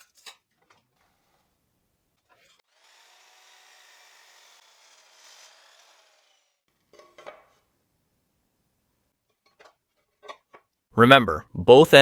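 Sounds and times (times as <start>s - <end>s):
power saw cutting wood: 2.3s - 6.7s.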